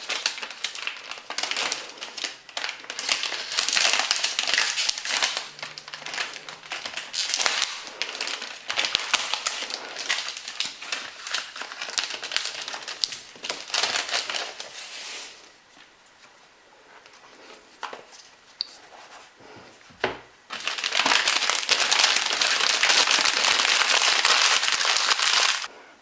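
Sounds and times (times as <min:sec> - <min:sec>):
packaging crinkling: 0:00.0 - 0:15.5, 0:20.5 - 0:25.7.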